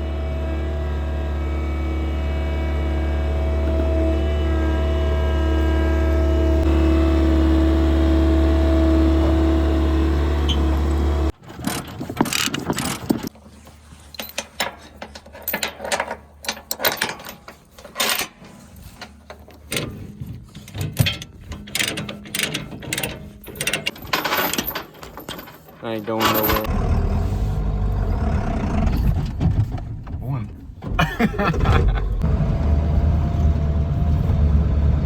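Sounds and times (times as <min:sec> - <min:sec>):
engine running: 0:00.0 - 0:11.4, 0:26.2 - 0:35.0.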